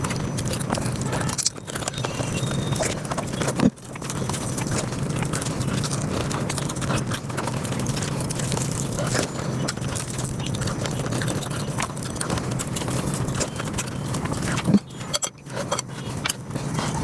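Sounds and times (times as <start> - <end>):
sped-up chewing clicks: 0.0 - 17.0.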